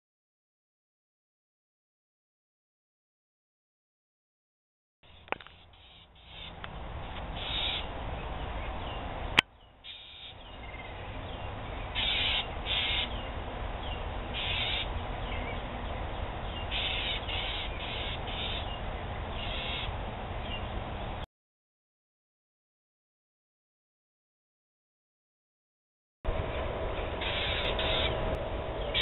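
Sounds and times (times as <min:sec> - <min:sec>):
small bird scolding calls: 0:05.1 - 0:06.6, 0:07.4 - 0:08.0, 0:09.8 - 0:15.6, 0:16.4 - 0:20.7, 0:27.2 - 0:29.0.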